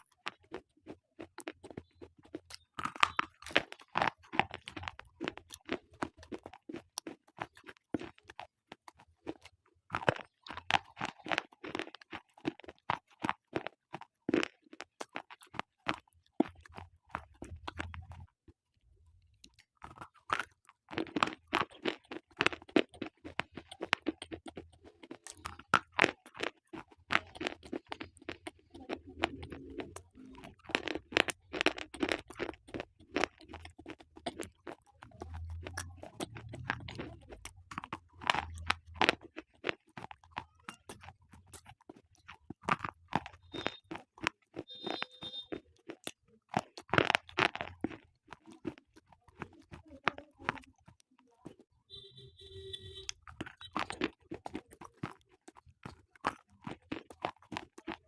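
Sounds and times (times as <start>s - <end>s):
slate pencils crunching: 20.0s - 51.4s.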